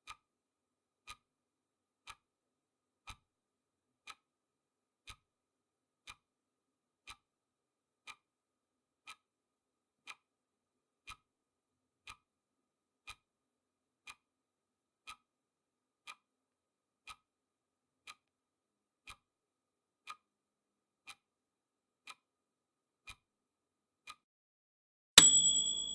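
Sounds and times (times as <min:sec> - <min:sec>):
clock ticking: 0:25.2 - 0:25.9.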